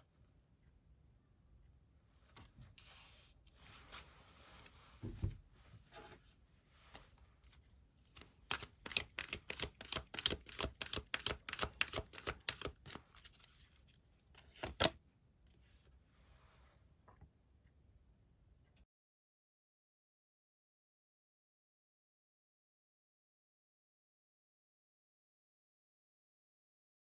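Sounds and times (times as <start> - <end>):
cards sliding: 8.1 - 13.7, 14.4 - 15.0
cards snapping: 8.2 - 13.3, 14.4 - 15.0.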